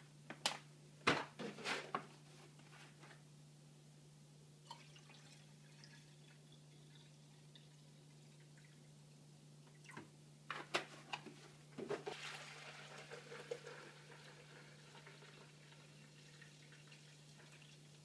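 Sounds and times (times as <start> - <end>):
faint steady hum: 0.0 - 18.0
liquid pouring into reservoir: 4.6 - 8.8, 12.0 - 18.0.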